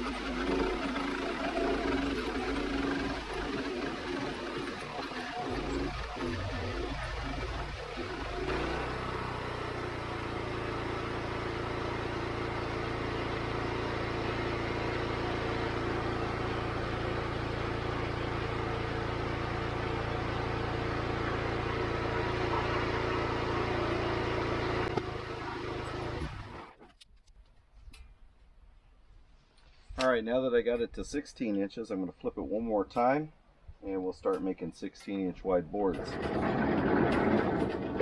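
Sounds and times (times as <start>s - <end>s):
sawmill engine running: 0.0s - 26.9s, 35.8s - 38.0s.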